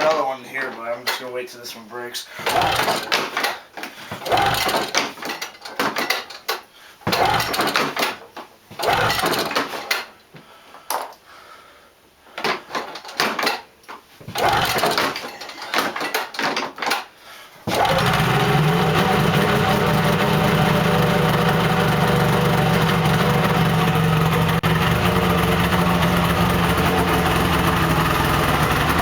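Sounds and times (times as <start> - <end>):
snowmobile engine cranking: 2.4 - 3.6, 4.2 - 6.5, 7.1 - 8.2, 8.8 - 10.0, 14.3 - 16.6, 17.7 - 29.0
snowmobile engine running: 17.7 - 29.0.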